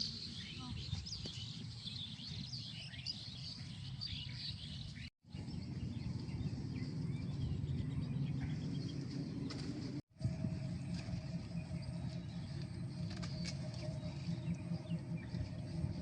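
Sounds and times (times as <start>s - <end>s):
small birds chirping: 0.0s - 10.0s, 10.7s - 16.0s
low outdoor rumble: 0.0s - 16.0s.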